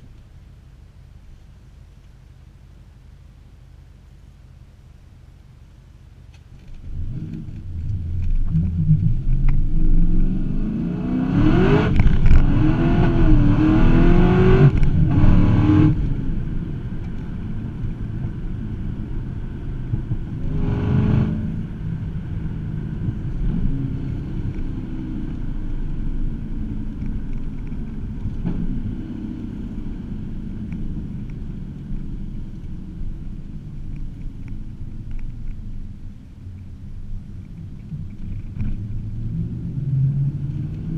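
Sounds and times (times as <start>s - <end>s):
car engine revving from inside: 6.8s - 16.6s, 19.9s - 21.9s, 38.8s - 40.9s.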